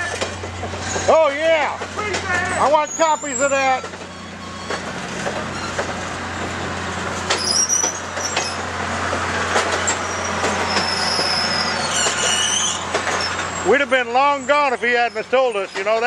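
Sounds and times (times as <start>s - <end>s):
train clicks and clanks: 0.0s - 16.0s
train rumbling past: 0.0s - 16.0s
high-pitched wheel squeal: 2.3s - 6.0s, 7.3s - 8.7s, 9.7s - 16.0s.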